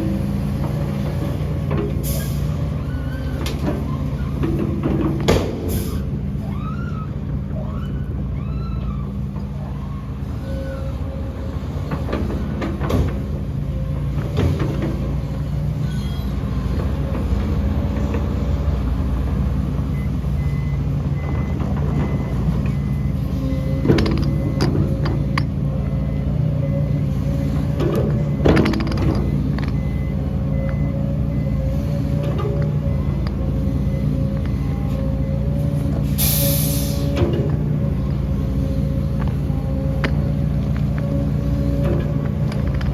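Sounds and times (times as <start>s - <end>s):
heavy diesel machinery running: 0.0s - 6.5s, 9.1s - 42.9s
reversing alarm beeping: 19.8s - 42.9s.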